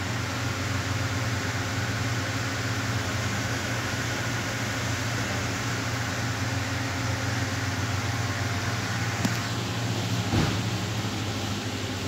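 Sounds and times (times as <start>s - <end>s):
engine idling with low drone: 0.0s - 12.0s
short thump: 10.2s - 10.7s.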